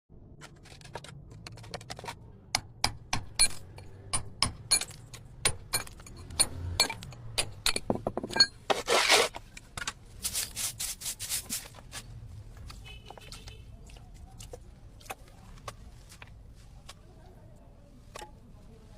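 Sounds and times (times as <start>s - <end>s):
tool scraping plastered wall: 8.6s - 9.5s, 10.2s - 12.1s.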